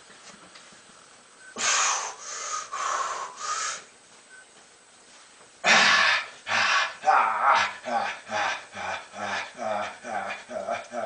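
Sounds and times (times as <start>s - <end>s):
man breathing hard: 1.6s - 3.9s, 5.6s - 11.0s.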